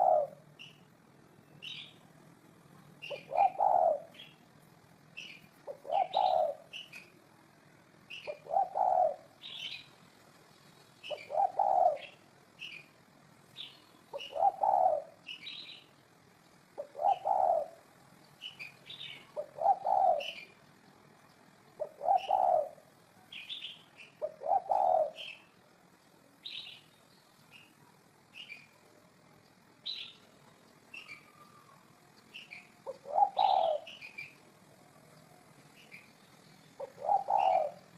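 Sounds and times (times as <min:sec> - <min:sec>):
dove cooing: 0:00.0 - 0:00.8, 0:03.0 - 0:04.4, 0:05.2 - 0:07.2, 0:08.1 - 0:09.9, 0:11.0 - 0:12.9, 0:13.6 - 0:15.7, 0:16.8 - 0:20.6, 0:21.6 - 0:25.6, 0:31.0 - 0:36.0, 0:36.7 - 0:37.9
small bird high chirps: 0:00.0 - 0:02.1, 0:03.0 - 0:04.5, 0:05.1 - 0:07.2, 0:08.0 - 0:10.0, 0:10.7 - 0:20.6, 0:21.3 - 0:25.6, 0:26.4 - 0:28.8, 0:29.4 - 0:37.9.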